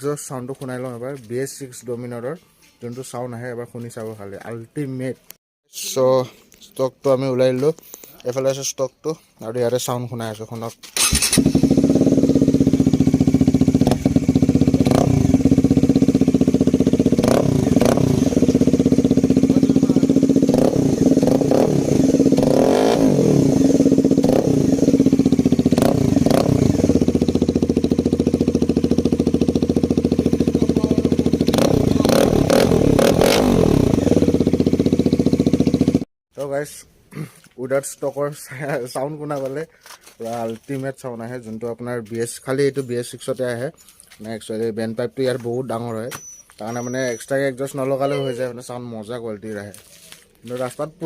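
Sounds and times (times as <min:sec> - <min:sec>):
motorcycle engine idling: 0:11.1 - 0:36.0.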